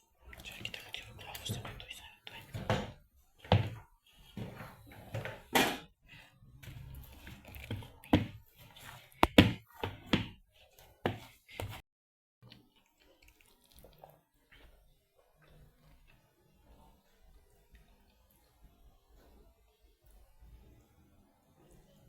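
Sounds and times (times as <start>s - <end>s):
sharp knocks and thuds: 9.2s - 10.4s.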